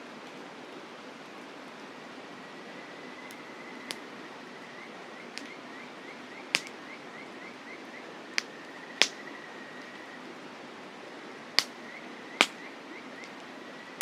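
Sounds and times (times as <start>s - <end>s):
campfire wood crackling: 5.2s - 7.2s, 8.2s - 10.4s
sharp pops of fire: 5.4s - 5.6s, 6.5s - 6.9s, 8.3s - 9.3s, 11.6s - 11.8s, 12.4s - 12.6s.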